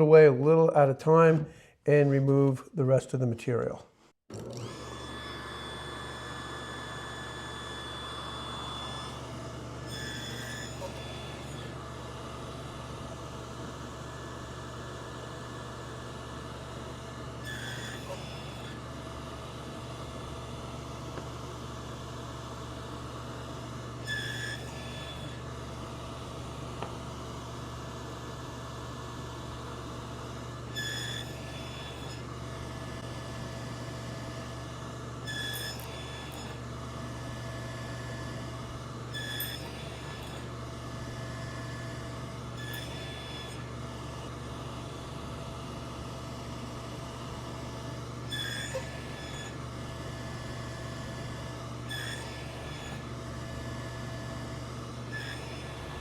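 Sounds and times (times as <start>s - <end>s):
table saw running: 4.3s - 56.0s
saw blade cutting wood: 9.8s - 11.8s, 17.4s - 18.8s, 24.0s - 25.4s, 30.7s - 32.3s, 35.2s - 36.6s, 39.2s - 40.5s, 42.5s - 43.6s, 48.3s - 49.6s, 51.8s - 53.1s, 55.0s - 56.0s.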